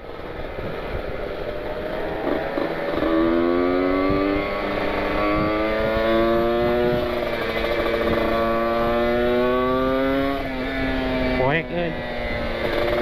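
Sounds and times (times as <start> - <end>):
motorcycle engine accelerating: 0.0 - 13.0
wind rush: 3.5 - 9.0.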